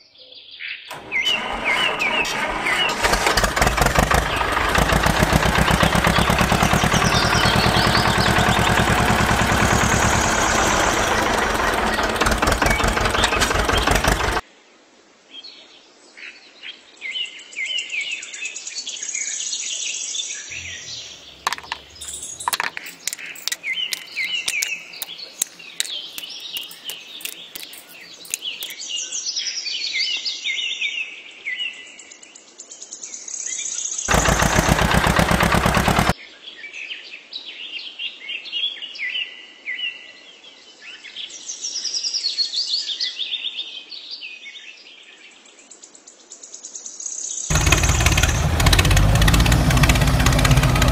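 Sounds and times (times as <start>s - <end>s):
loud harsh rattle: 0.9s - 14.4s, 21.4s - 28.7s, 34.1s - 36.1s, 47.5s - 50.9s
sharp clicks: 0.9s - 14.4s, 21.4s - 28.8s, 34.1s - 36.1s, 47.5s - 50.9s
small birds chirping: 1.1s - 14.4s, 20.5s - 28.9s, 47.5s - 50.9s.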